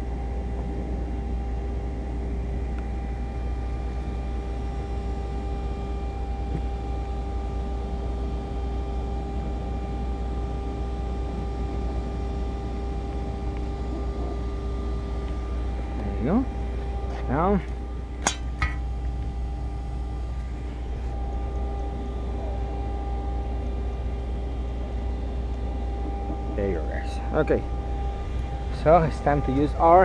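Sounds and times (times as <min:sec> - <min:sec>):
constant tones: 0:00.0 - 0:30.0
deep rumble: 0:00.0 - 0:30.0
mechanical hum: 0:00.0 - 0:30.0.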